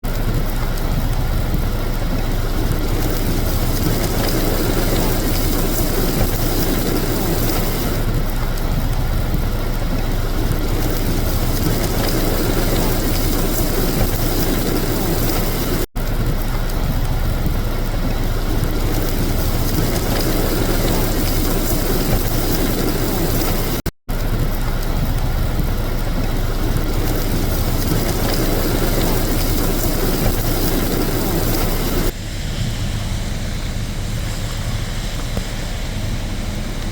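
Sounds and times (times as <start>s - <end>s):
car engines running: 0.0s - 36.9s.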